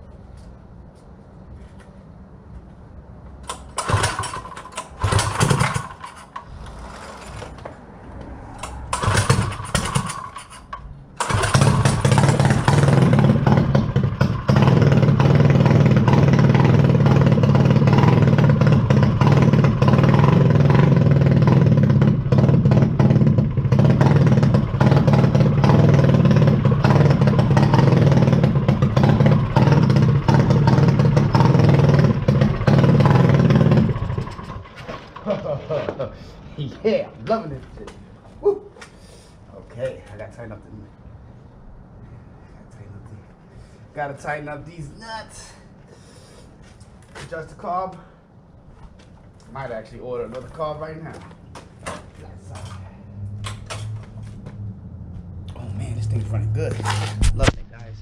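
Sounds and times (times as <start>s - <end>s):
dirt bike engine starting: 3.5s - 7.6s, 8.4s - 36.1s.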